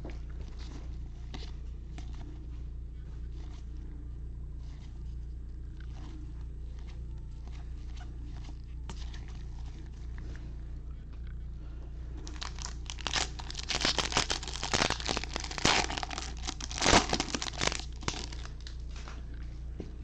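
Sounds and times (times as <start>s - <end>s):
foil wrapper tearing and crinkling: 12.2s - 18.7s.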